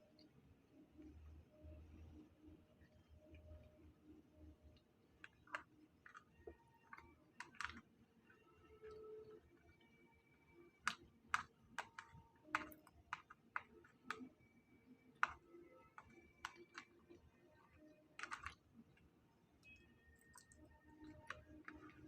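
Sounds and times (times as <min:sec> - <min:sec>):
utensils clicking on containers: 0:05.2 - 0:07.8, 0:10.9 - 0:14.3, 0:15.2 - 0:16.9, 0:17.7 - 0:18.6.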